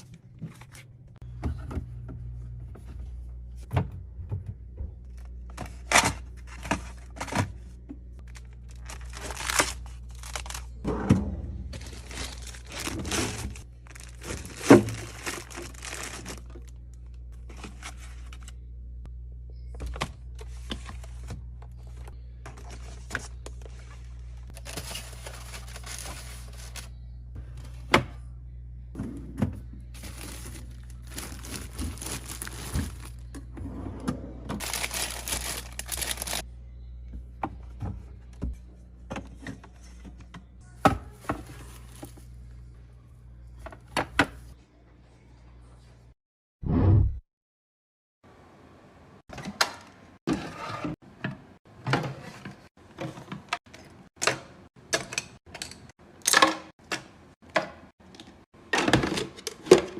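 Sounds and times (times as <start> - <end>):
plastic packaging crinkling and tearing: 8.2 - 10.8, 11.7 - 16.8, 24.5 - 26.9, 30.0 - 33.3, 34.6 - 36.4.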